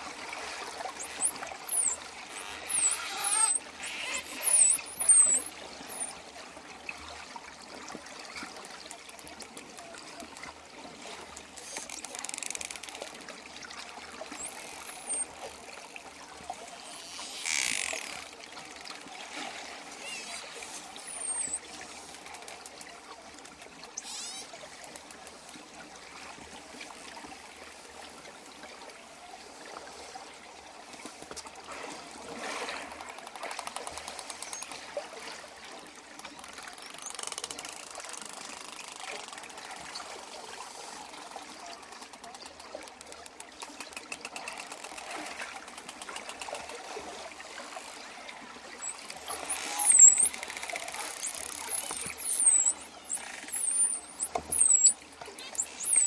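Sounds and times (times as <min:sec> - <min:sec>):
dolphin clicks: 0:00.6 - 0:06.2, 0:11.3 - 0:13.3, 0:14.2 - 0:25.4, 0:33.0 - 0:35.0, 0:36.2 - 0:39.8, 0:41.9 - 0:46.8, 0:48.8 - 0:56.0
dolphin whistles: 0:00.8 - 0:06.2, 0:14.3 - 0:15.3, 0:19.8 - 0:21.7, 0:24.0 - 0:24.5, 0:48.8 - 0:56.0.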